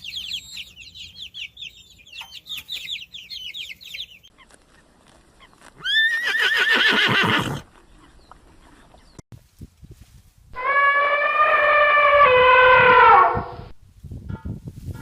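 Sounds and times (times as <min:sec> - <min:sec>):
chickens calling: 0:00.0 - 0:09.2
horse whinny: 0:05.8 - 0:07.6.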